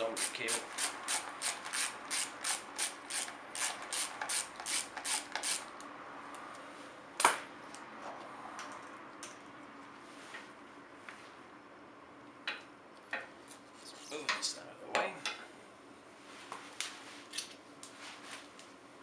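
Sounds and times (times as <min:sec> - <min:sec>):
ratchet wrench clicking: 0:00.2 - 0:05.7.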